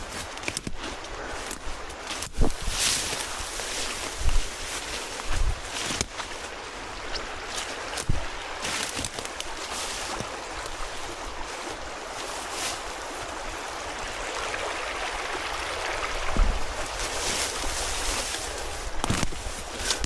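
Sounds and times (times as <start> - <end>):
creek water running over rocks: 0.0 - 20.0
low thumps: 16.2 - 17.0.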